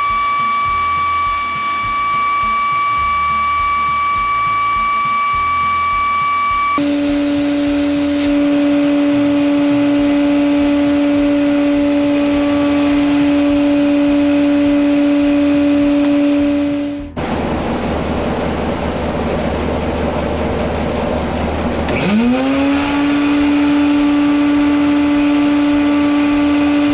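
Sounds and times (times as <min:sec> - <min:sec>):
air hissing: 0:00.0 - 0:08.6
shop machinery whining: 0:00.0 - 0:26.9.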